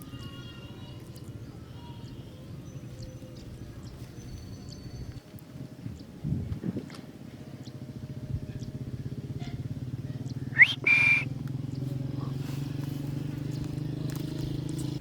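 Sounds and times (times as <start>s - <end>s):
low pulsing drone: 1.3s - 13.8s
parrot whistle: 10.6s - 11.3s.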